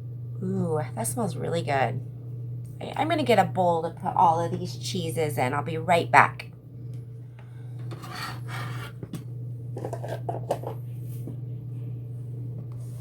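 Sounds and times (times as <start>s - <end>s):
steady low hum: 0.0s - 13.0s
rubbing and scraping handling: 7.8s - 9.2s, 9.8s - 11.3s.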